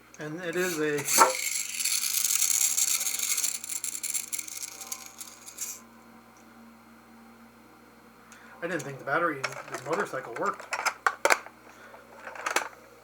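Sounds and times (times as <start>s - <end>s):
harsh rasping toy hiss: 0.6s - 5.8s
toy click: 0.6s - 5.8s.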